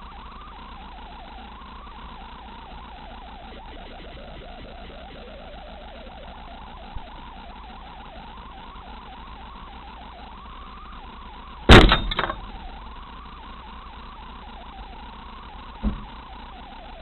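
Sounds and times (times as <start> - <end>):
car cabin and road noise: 6.3 - 17.0
bang: 11.7 - 12.6
car crash: 11.7 - 12.8.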